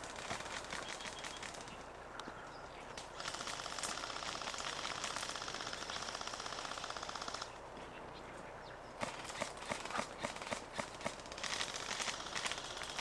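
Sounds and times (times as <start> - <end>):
sharp irregular clicks: 0.0 - 2.3, 3.0 - 7.6, 9.0 - 13.0
airsoft gun firing full-auto: 3.2 - 7.5, 9.0 - 13.0.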